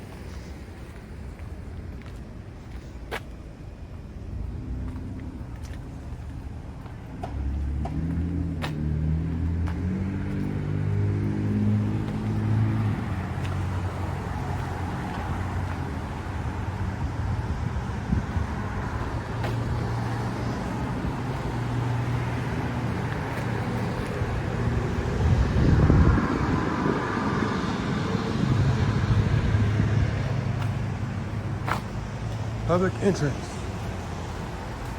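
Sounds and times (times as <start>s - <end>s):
road traffic engine hum: 0.0s - 34.9s
vehicle passing: 4.3s - 34.9s.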